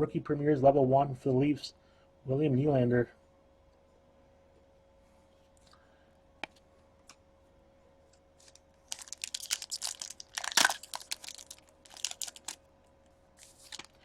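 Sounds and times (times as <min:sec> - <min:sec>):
wrapper tearing and crinkling: 0:08.4 - 0:12.6, 0:13.4 - 0:14.0.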